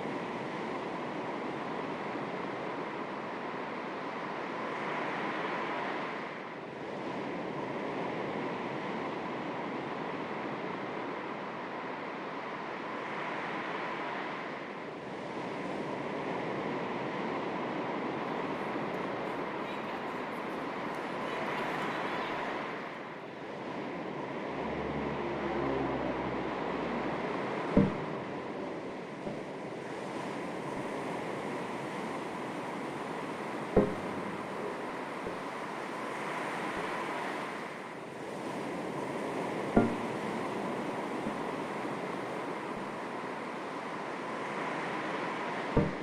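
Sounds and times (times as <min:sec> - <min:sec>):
light breeze: 0:00.0 - 0:46.0
sea waves lapping on shore: 0:00.0 - 0:46.0
low steady drone: 0:23.0 - 0:29.8, 0:30.5 - 0:38.0, 0:39.5 - 0:43.9, 0:45.7 - 0:46.0
small waves lapping on shore: 0:25.9 - 0:46.0.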